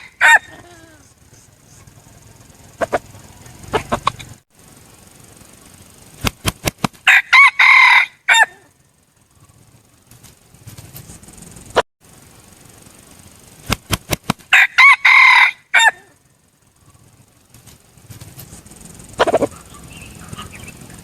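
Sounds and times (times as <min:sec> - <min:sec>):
rooster crowing: 0:00.0 - 0:01.0, 0:07.1 - 0:08.8, 0:14.5 - 0:16.2.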